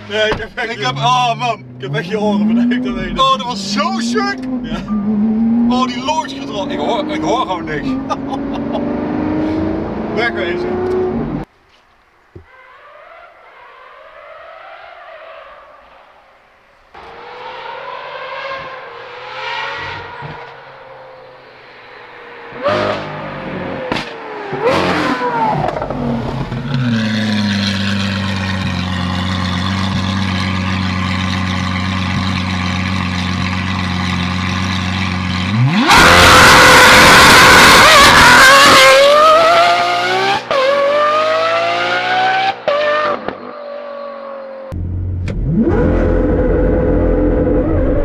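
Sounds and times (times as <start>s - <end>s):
sports car engine revving: 0.8s - 11.5s, 17.0s - 48.0s
car engine idling deeply: 25.9s - 35.7s, 44.7s - 46.3s.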